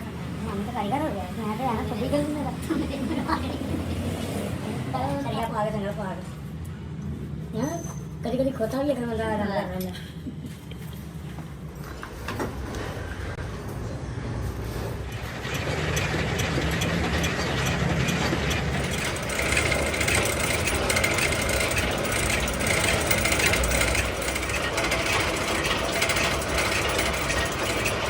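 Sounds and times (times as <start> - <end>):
workshop machine running: 10.4 - 28.0.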